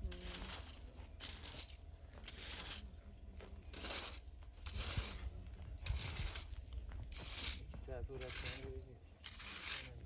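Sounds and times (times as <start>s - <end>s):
dry rustling scrapes: 3.7s - 10.0s.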